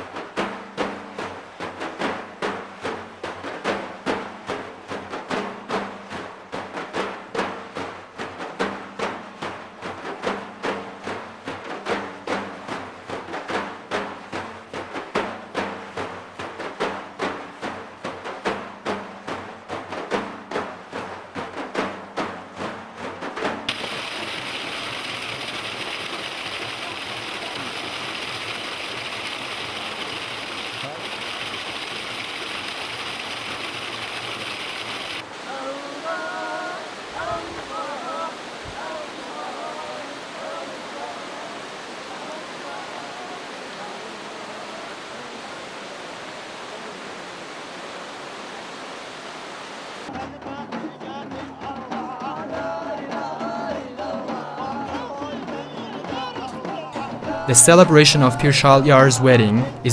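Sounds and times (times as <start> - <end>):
music: 0.0 - 23.7, 50.1 - 58.6
steady rushing noise: 23.7 - 35.2
flowing water rushing: 23.7 - 50.1
drumbeat music: 57.2 - 59.9.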